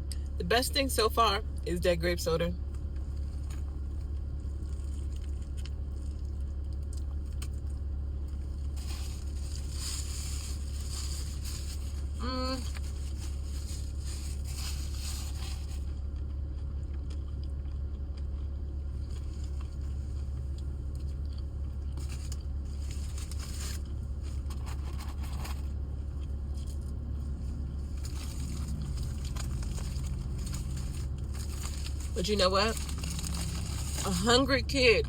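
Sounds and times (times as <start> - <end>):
low hum inside car: 0.0 - 35.0
person chewing crunchy food: 2.8 - 34.1
rustles and scrapes: 8.4 - 16.0, 21.9 - 25.8, 26.5 - 34.3.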